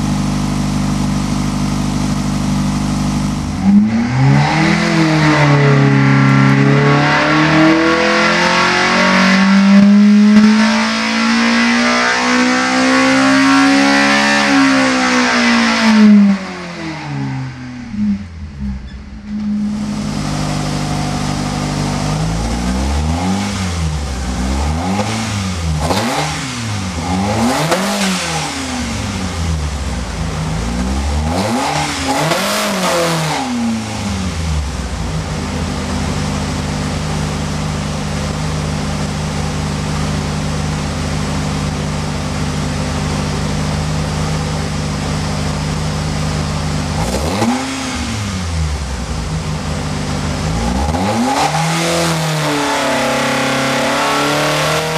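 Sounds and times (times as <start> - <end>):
car engine revving and idling: 0.0 - 54.9.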